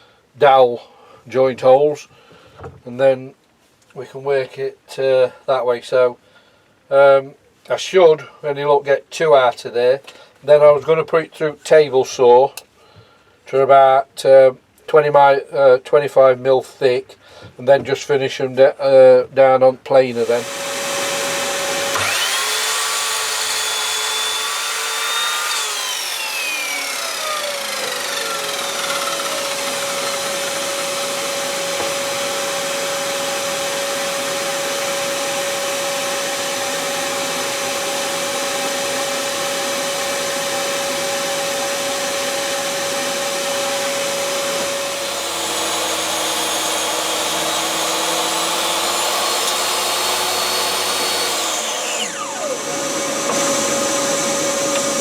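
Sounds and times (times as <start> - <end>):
saw ripping wood: 20.1 - 55.0
table saw motor whine: 20.2 - 55.0.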